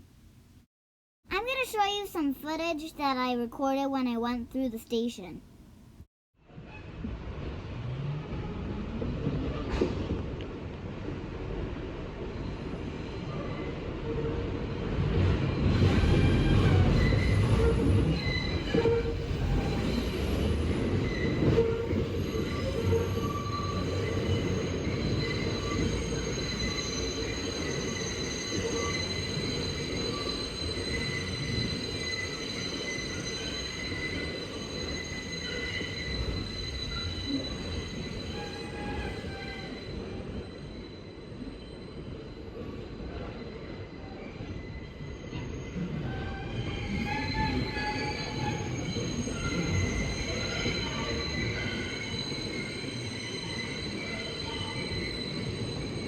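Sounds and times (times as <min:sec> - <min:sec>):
subway train rumble: 0:06.5 - 0:56.0
train wheels squealing: 0:12.3 - 0:56.0.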